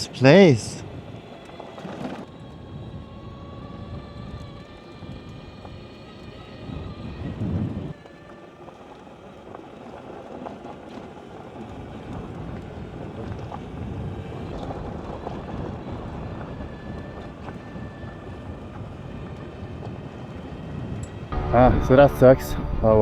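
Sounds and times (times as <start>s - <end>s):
wind rushing over microphone: 0.0s - 8.0s
motorcycle road noise: 0.0s - 23.0s.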